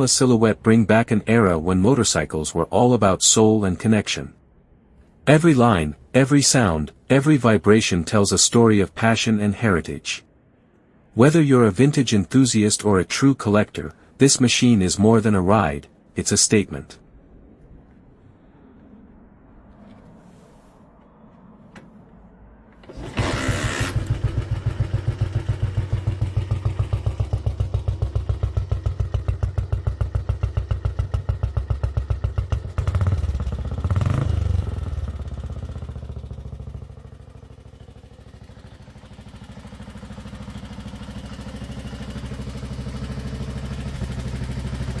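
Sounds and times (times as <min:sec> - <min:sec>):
motorcycle engine thumping: 0:22.8 - 0:34.2, 0:34.9 - 0:45.0.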